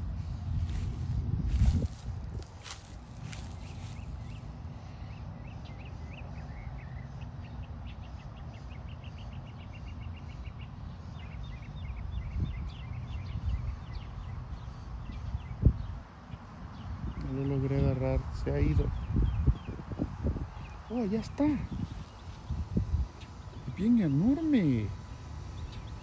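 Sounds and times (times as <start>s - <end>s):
low rumble: 0.0s - 4.5s
small bird chirping: 0.0s - 17.6s.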